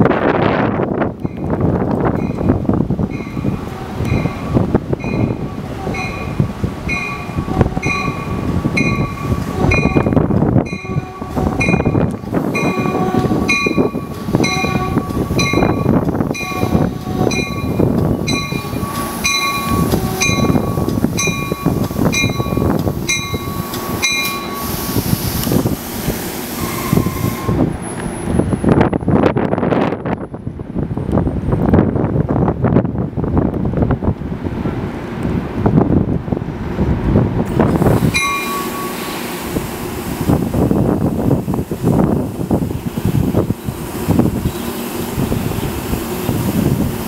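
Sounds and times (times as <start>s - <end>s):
train wheels rumbling on rails: 0.0s - 47.0s
train bell ringing: 2.1s - 24.8s, 26.6s - 28.0s, 38.1s - 39.2s.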